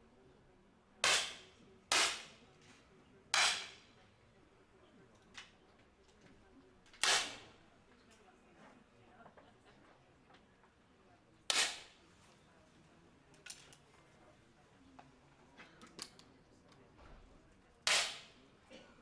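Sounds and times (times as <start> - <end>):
air pistol shots: 1.0 - 2.3, 3.4 - 3.8, 7.0 - 7.4, 11.5 - 11.9, 17.9 - 18.4.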